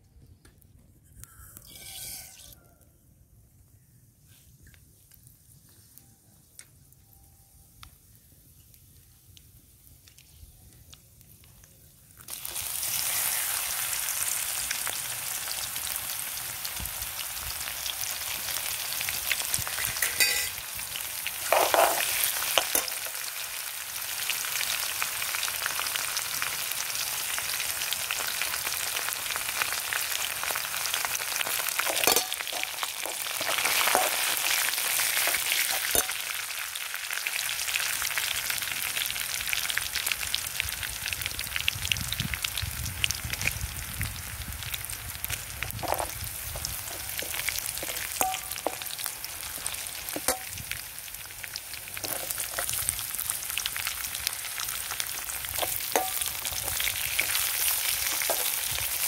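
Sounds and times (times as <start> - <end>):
metal ladle scraping pan: 1.4 - 2.6, 19.8 - 20.6, 21.4 - 23.0, 31.8 - 36.1, 52.0 - 52.7, 58.0 - 58.6
garlic sizzling in oil: 12.1 - 59.0.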